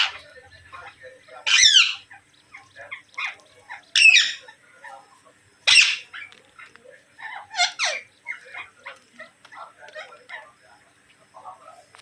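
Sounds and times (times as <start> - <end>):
parakeets screeching: 0.0 - 10.9
parakeets chattering: 0.0 - 12.0.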